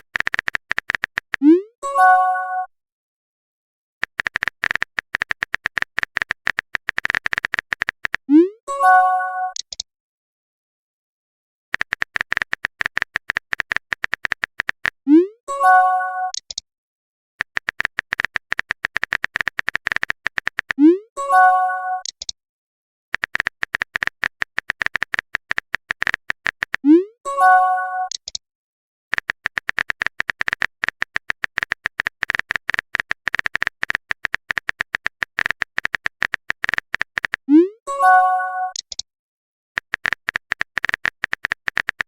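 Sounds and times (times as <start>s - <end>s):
rapid keystroke clicks: 0.0s - 1.6s, 4.0s - 8.3s, 9.5s - 9.8s, 11.7s - 15.0s, 17.4s - 20.8s, 23.1s - 26.9s, 29.1s - 37.6s, 38.7s - 39.1s, 39.8s - 42.0s
message chime: 37.9s - 38.8s.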